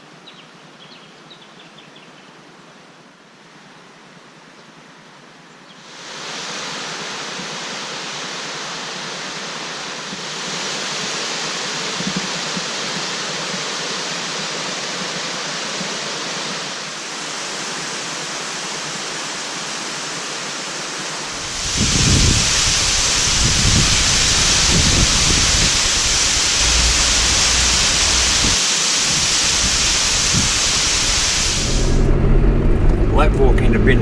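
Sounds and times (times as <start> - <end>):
waterfall rushing: 5.8 - 33.5.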